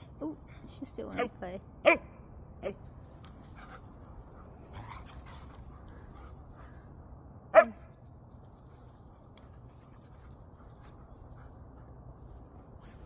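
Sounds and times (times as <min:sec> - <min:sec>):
dog barking: 0:01.2 - 0:02.8, 0:07.5 - 0:07.9.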